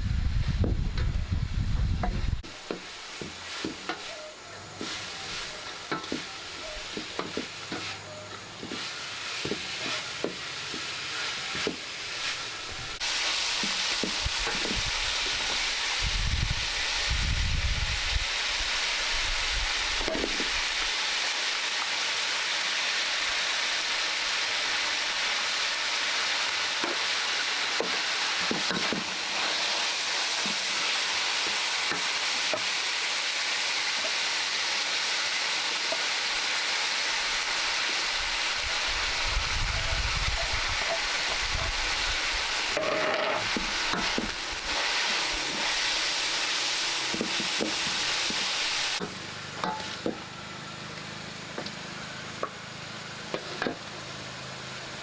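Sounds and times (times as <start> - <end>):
food sizzling in a pan: 0.0 - 55.0
utensil scraping a pan: 2.0 - 15.7, 39.8 - 50.2.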